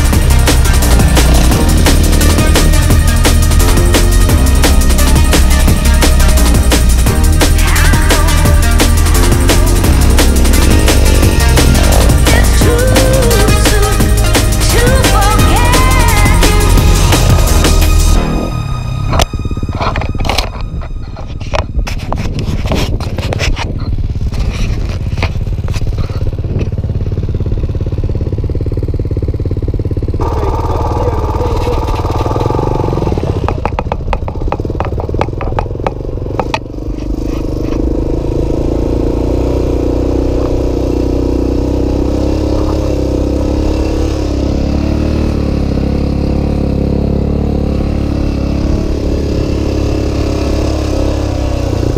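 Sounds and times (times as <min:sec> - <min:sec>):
motorcycle engine idling: 0:00.0 - 0:51.9
sharp knocks and rattles: 0:31.3 - 0:37.9.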